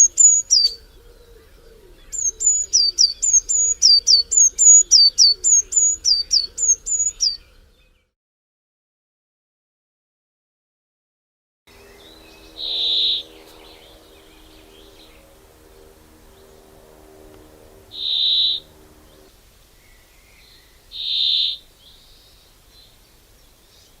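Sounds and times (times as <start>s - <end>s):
faint low hum: 11.7s - 24.0s
bird short high call: 17.5s - 19.2s.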